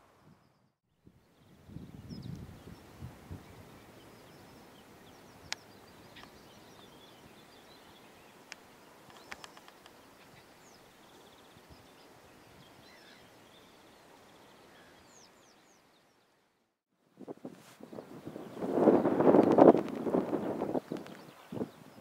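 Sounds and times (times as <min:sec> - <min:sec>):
songbirds chirping: 0:00.1 - 0:16.8, 0:17.8 - 0:22.0
sharp clicks: 0:08.5 - 0:10.0.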